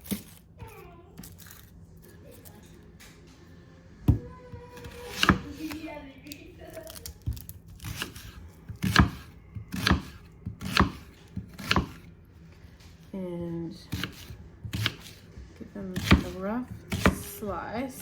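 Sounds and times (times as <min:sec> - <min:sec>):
knife chopping on cutting board: 0:04.1 - 0:05.8, 0:06.9 - 0:12.1, 0:13.9 - 0:18.0.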